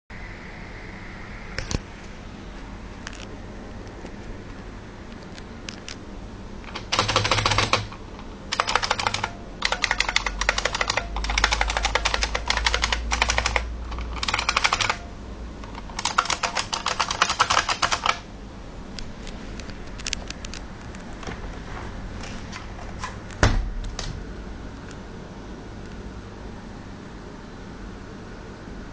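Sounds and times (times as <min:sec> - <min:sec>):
keyboard keys clicking: 0:06.7 - 0:15.0, 0:15.7 - 0:18.2.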